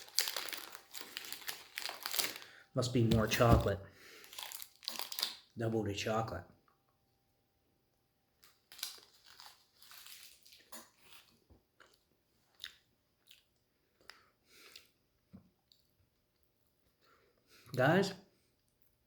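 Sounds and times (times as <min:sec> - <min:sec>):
wrapper crackle: 0:00.0 - 0:02.6, 0:03.2 - 0:05.5, 0:08.4 - 0:11.3
man chewing: 0:09.0 - 0:17.7.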